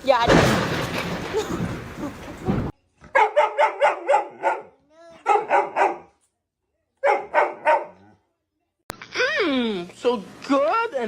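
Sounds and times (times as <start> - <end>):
dog barking: 3.1 - 6.2, 7.0 - 8.2.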